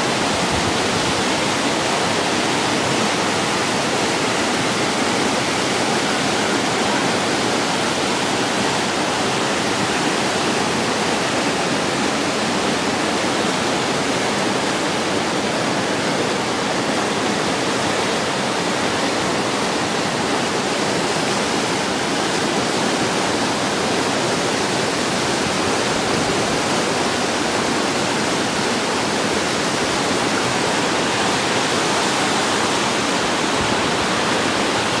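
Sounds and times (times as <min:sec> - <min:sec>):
river rushing over rocks: 0:00.0 - 0:35.0.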